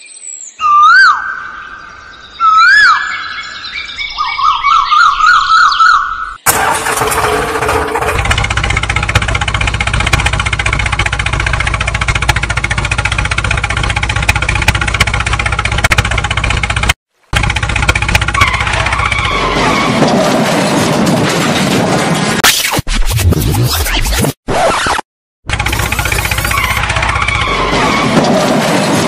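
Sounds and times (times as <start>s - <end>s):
bird whistles and warbling trill: 0.0s - 6.4s
engine droning: 6.5s - 22.3s, 25.5s - 29.0s.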